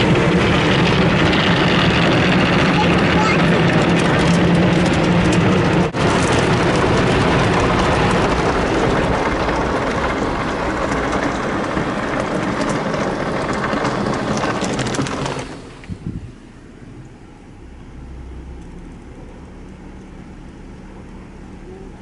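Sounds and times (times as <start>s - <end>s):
water spraying on a car: 0.0s - 22.0s.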